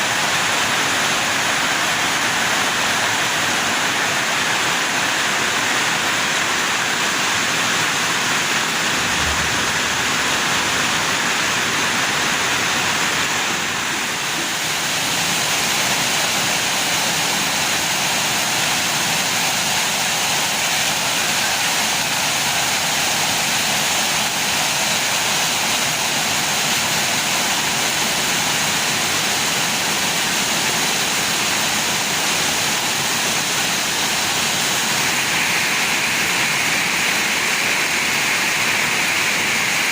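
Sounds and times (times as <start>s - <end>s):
heavy rain pouring: 0.0s - 39.9s
strong wind: 8.0s - 14.2s.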